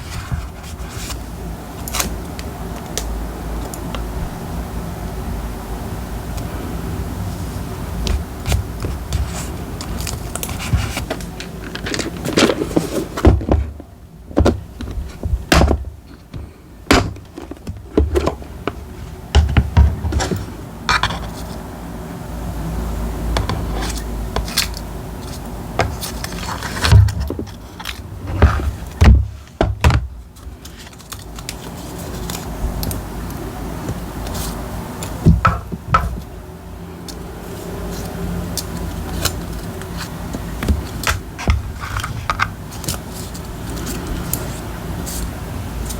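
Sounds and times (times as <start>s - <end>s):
paper rustling: 0.0s - 3.0s, 7.3s - 19.2s, 30.3s - 35.4s, 37.4s - 45.9s
steady low hum: 0.0s - 45.9s.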